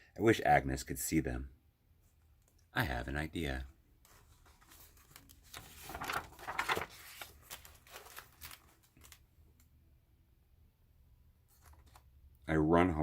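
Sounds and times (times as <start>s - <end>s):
book page turning: 4.1s - 9.2s, 11.5s - 12.1s.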